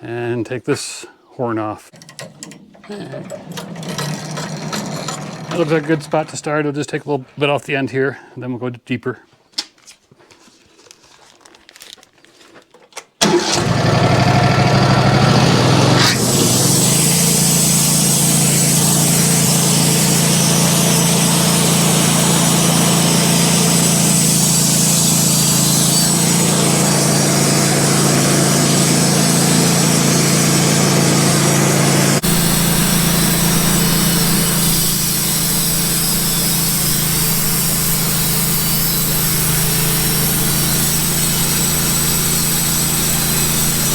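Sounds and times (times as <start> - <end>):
chainsaw cutting log: 13.2 - 43.9.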